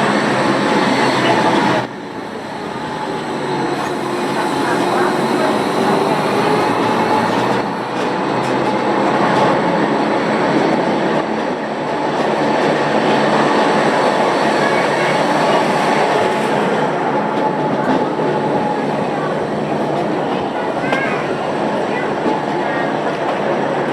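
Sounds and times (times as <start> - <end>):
train rail rumble: 0.0 - 23.9.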